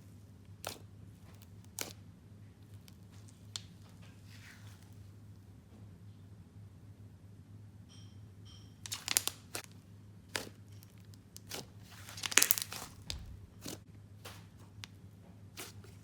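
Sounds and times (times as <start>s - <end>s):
slime squished by hand: 0.6s - 2.0s, 8.9s - 9.7s, 10.3s - 13.8s, 14.4s - 16.0s.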